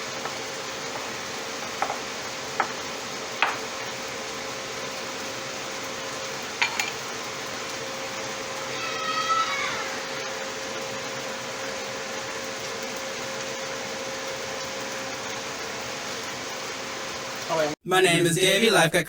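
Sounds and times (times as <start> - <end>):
dishes and utensils clinking: 6.6 - 7.0.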